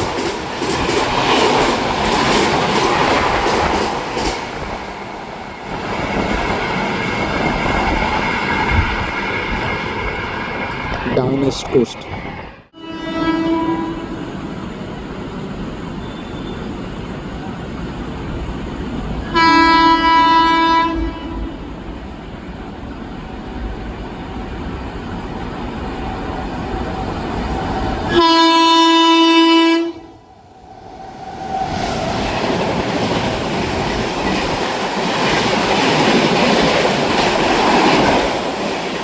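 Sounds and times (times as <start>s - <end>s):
train running rushing noise: 0.0s - 39.0s
locomotive horn blasts: 12.8s - 14.2s, 19.3s - 21.7s, 28.1s - 30.1s.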